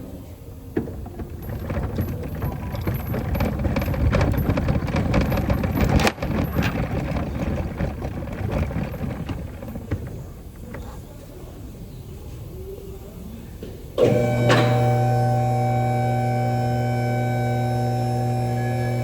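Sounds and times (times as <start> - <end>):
metallic clicking and clatter of tools: 0.8 - 11.0.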